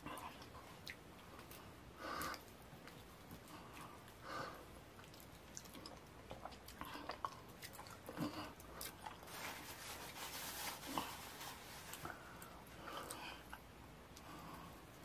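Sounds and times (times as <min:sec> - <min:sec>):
wet chewing and mouth smacking: 0:00.0 - 0:04.2, 0:04.8 - 0:09.3
paper tissue rustling: 0:09.2 - 0:12.4.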